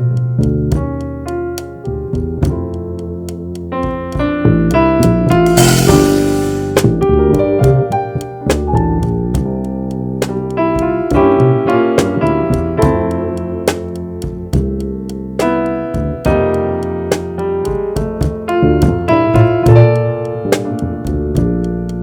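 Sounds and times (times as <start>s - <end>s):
walking bass: 0.0s - 16.6s
piano keyboard melody: 0.0s - 22.0s
light drum kit hits: 3.8s - 9.5s
cymbal crash: 5.5s - 7.0s.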